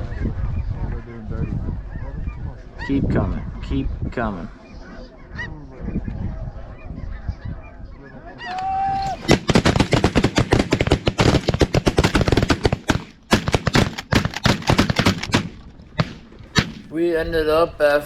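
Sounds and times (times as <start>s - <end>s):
geese honking: 4.4s - 9.4s.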